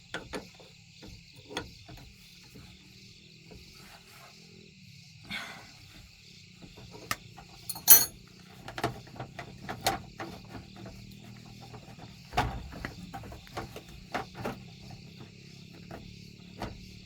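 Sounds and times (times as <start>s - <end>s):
insects chorus: 0.0s - 17.0s
metal tools clinking on metal: 7.6s - 8.2s.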